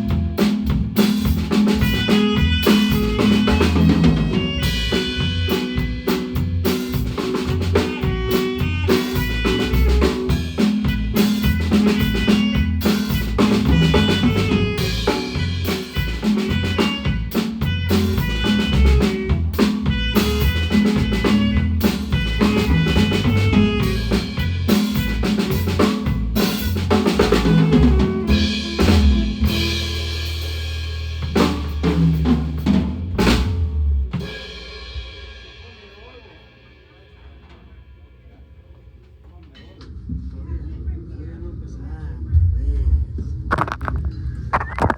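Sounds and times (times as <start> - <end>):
marimba band playing: 0.0 - 29.9
drum kit playing: 0.0 - 35.3, 43.5 - 44.9.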